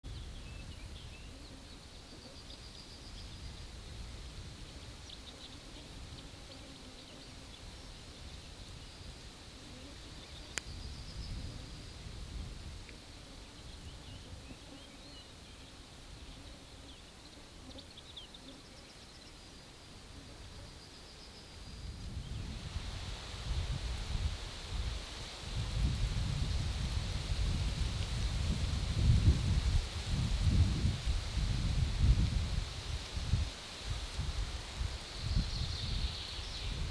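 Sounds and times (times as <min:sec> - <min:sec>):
small birds chirping: 0:00.1 - 0:22.7, 0:34.7 - 0:36.9.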